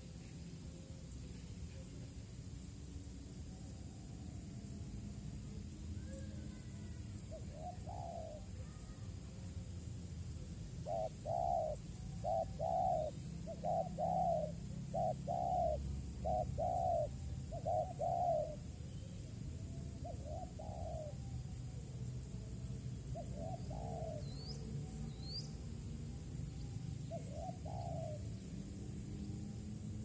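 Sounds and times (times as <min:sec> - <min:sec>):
faint high bird chirps: 0:03.4 - 0:29.7
dove cooing: 0:06.1 - 0:08.9, 0:10.8 - 0:18.8, 0:20.0 - 0:21.4, 0:23.1 - 0:24.6, 0:27.0 - 0:28.6.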